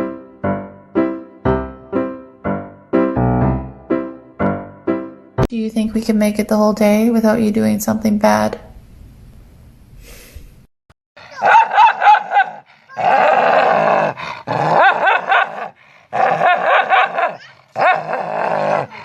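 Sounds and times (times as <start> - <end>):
dog barking and yelping: 11.2 - 19.0.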